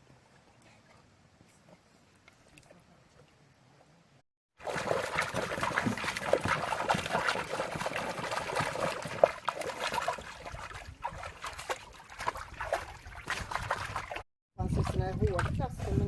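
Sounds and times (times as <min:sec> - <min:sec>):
water splashing in paddling pool: 0:04.6 - 0:16.0.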